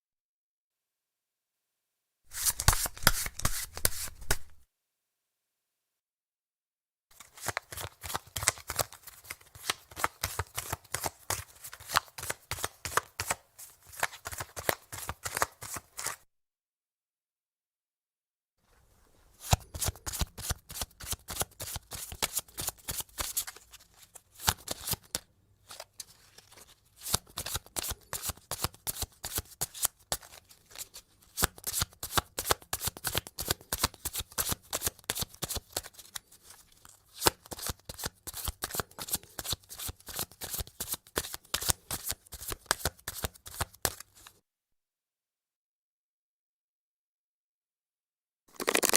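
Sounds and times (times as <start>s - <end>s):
playing cards being shuffled: 2.3s - 4.6s, 7.2s - 16.2s, 19.3s - 44.3s, 48.5s - 48.9s.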